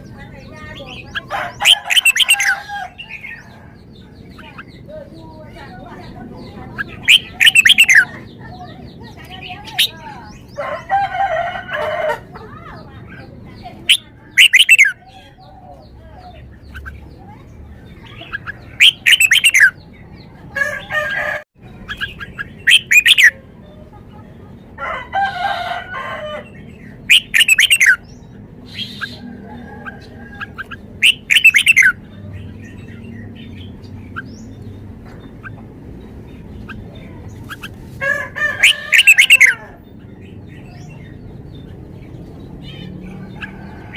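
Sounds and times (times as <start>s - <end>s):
rooster crowing: 1.2s - 3.9s, 10.6s - 12.4s, 20.6s - 21.5s, 24.8s - 26.6s, 29.0s - 30.7s, 38.0s - 39.8s, 43.0s - 43.9s
bird singing whistled phrases: 1.7s - 2.6s, 7.0s - 8.1s, 13.9s - 15.0s, 18.8s - 19.8s, 21.9s - 23.4s, 27.1s - 28.0s, 31.0s - 32.0s, 38.6s - 39.6s.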